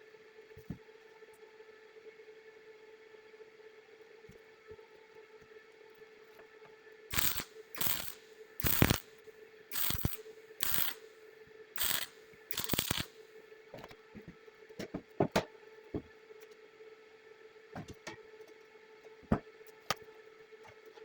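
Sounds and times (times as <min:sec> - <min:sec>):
metal tool rasping strokes: 0:07.1 - 0:09.0, 0:09.7 - 0:11.0, 0:11.8 - 0:13.1.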